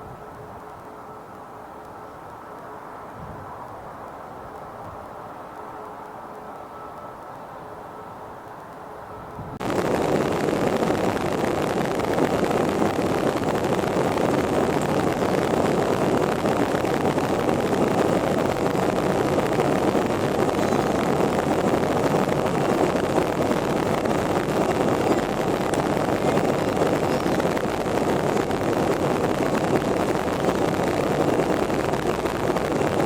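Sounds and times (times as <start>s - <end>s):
jet engines at takeoff thrust: 9.6s - 33.0s.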